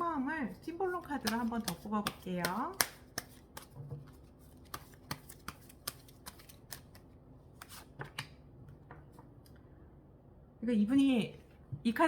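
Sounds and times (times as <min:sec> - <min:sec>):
cards being shuffled: 0:00.9 - 0:08.4.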